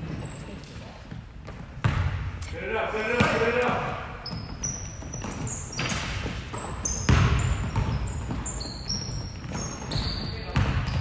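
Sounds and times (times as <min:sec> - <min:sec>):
basketball bouncing on hardwood: 0:03.2 - 0:11.0.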